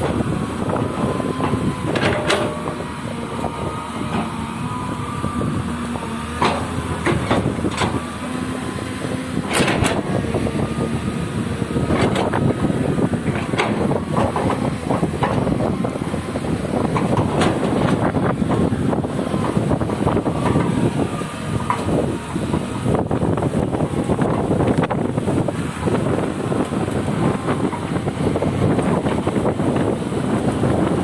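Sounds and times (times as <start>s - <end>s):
excavator diesel engine: 0.0s - 31.0s
metallic clanks and knocks: 1.9s - 2.6s, 6.4s - 8.0s.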